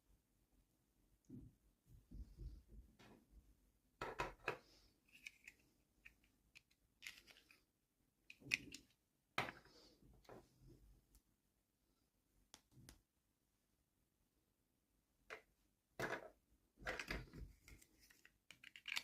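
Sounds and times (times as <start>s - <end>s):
plastic pieces clicking: 8.3s - 9.0s, 18.1s - 19.0s.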